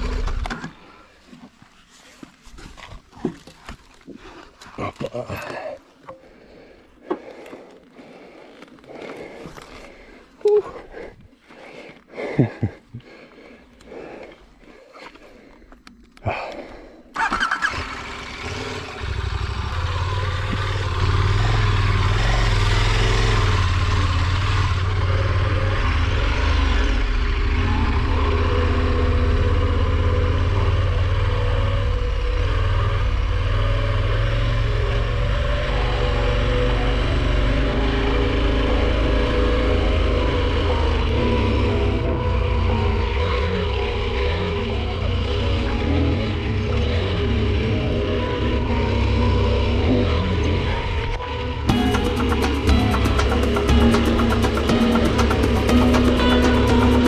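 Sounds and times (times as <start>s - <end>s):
motorcycle engine running: 0.0s - 0.7s, 17.2s - 57.0s.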